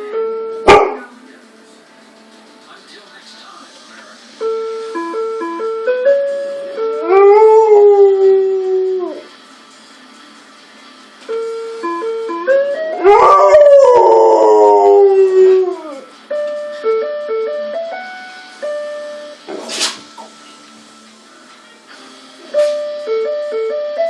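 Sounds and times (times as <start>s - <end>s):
dog howling: 13.0s - 16.1s
doorbell chime tune: 16.4s - 19.4s, 22.6s - 24.0s.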